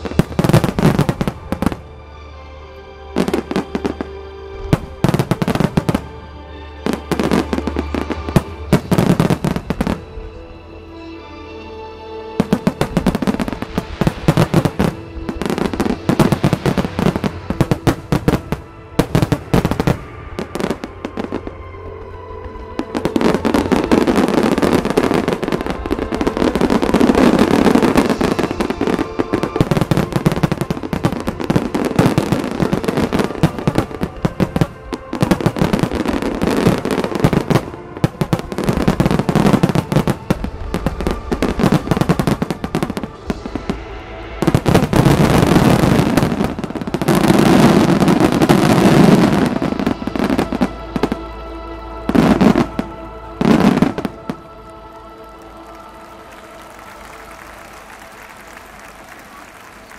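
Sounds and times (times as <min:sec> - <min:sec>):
fireworks bursts and bangs: 0:00.0 - 0:01.8, 0:03.2 - 0:06.2, 0:06.8 - 0:10.1, 0:12.4 - 0:21.4, 0:22.8 - 0:43.8, 0:44.4 - 0:51.2
music from loudspeakers: 0:00.0 - 0:59.9.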